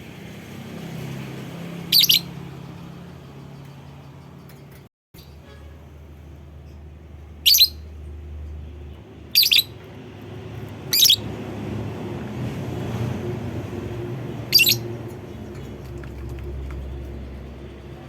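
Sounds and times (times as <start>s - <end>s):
bird chirping shrilly: 1.8s - 2.4s, 7.4s - 7.9s, 9.3s - 9.8s, 10.9s - 11.3s, 14.5s - 14.9s
low steady rumble: 6.0s - 18.0s.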